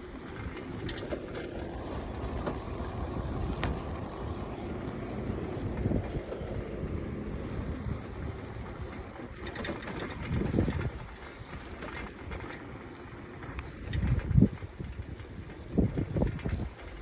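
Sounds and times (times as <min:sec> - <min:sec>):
light clicks and rattles: 0:00.0 - 0:17.0
low rumbling on microphone: 0:01.5 - 0:09.4.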